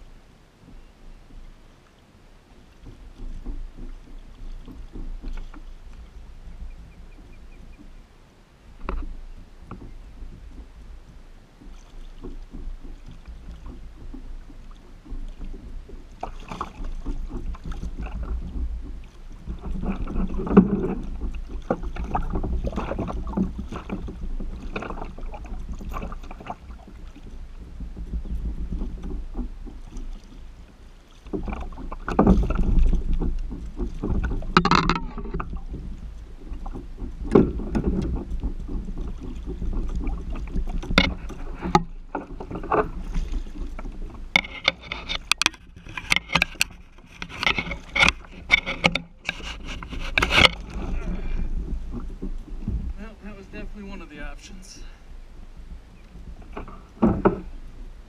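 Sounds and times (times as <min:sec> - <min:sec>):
water splashing around kayak: 0:00.0 - 0:58.0
knocks: 0:31.4 - 0:35.8, 0:44.3 - 0:49.4
low rumble: 0:49.8 - 0:58.0.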